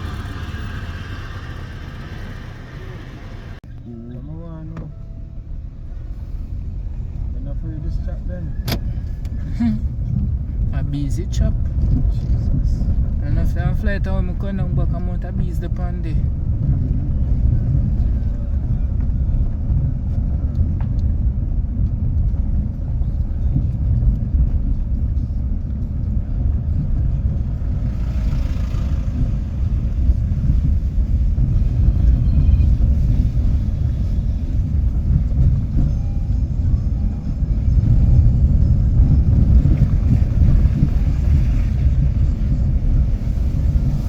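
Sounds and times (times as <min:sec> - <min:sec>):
steady low rumble: 0:00.0 - 0:44.0.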